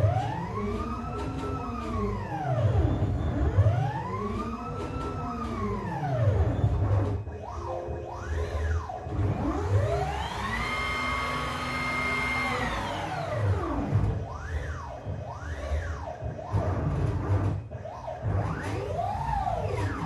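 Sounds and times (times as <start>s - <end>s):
stepper motors whining: 8.2s - 16.8s.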